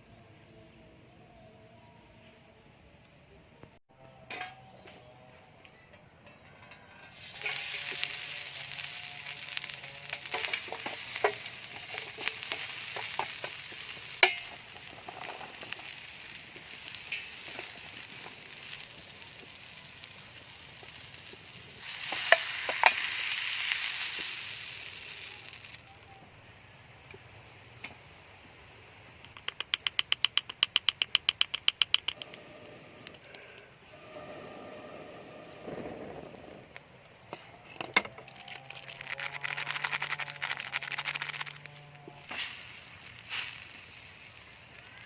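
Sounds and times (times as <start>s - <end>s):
utensil scraping a pan: 6.7s - 18.8s
mushrooms sizzling in oil: 7.1s - 26.0s, 37.7s - 45.0s.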